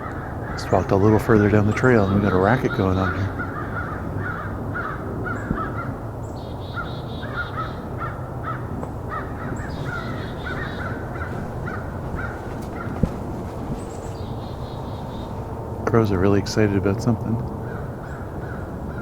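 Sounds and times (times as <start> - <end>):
crows cawing: 0.0 - 15.7, 17.5 - 19.0
narrator speaking: 0.6 - 3.4, 15.8 - 17.5.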